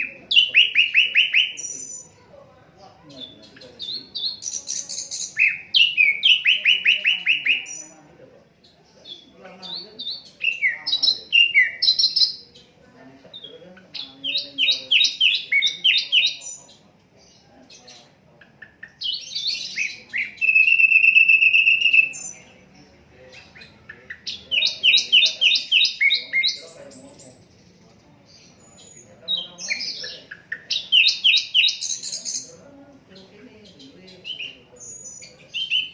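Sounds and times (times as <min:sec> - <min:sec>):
bird whistling song: 0:00.0 - 0:02.2, 0:03.2 - 0:07.9, 0:09.1 - 0:12.6, 0:13.4 - 0:16.8, 0:18.8 - 0:22.5, 0:23.4 - 0:27.4, 0:28.6 - 0:32.5, 0:34.1 - 0:35.9
high bird trill: 0:00.0 - 0:02.3, 0:03.0 - 0:35.9.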